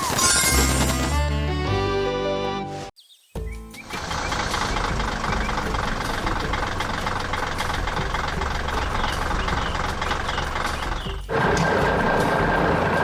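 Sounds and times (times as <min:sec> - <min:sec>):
heavy diesel engine running: 0:03.8 - 0:13.0.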